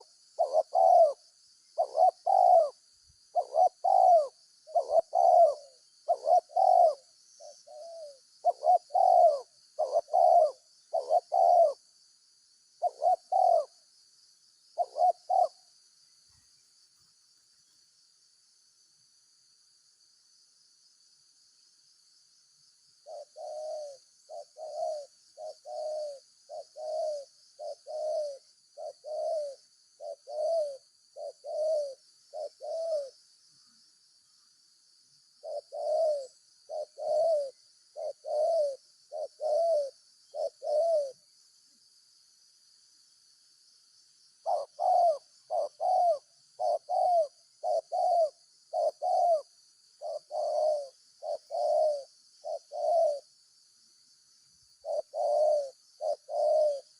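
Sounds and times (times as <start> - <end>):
dove cooing: 0.0 - 12.0, 12.7 - 13.9, 14.8 - 15.8, 23.0 - 33.7, 35.3 - 41.3, 44.3 - 53.3, 54.7 - 56.9
high insect hiss: 0.0 - 56.9.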